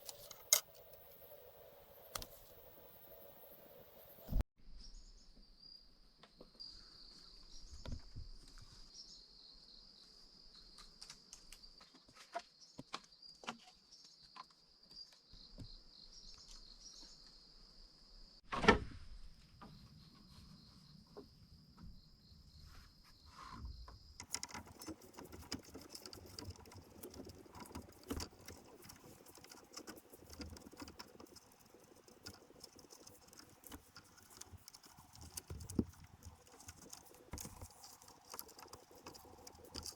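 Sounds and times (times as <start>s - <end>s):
insects droning: 0.0s - 4.4s, 19.7s - 39.9s
dense crackling and rustling: 24.2s - 39.9s
light clicks and knocks: 24.2s - 39.9s.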